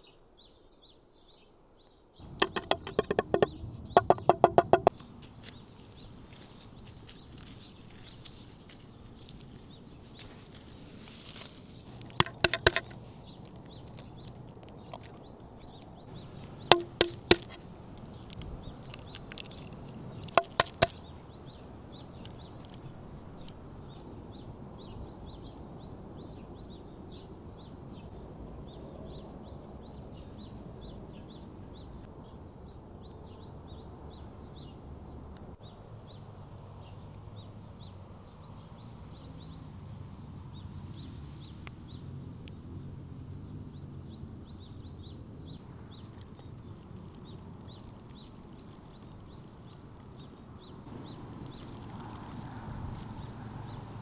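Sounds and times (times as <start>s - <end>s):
low outdoor background noise: 2.2s - 54.0s
small birds chirping: 2.2s - 54.0s.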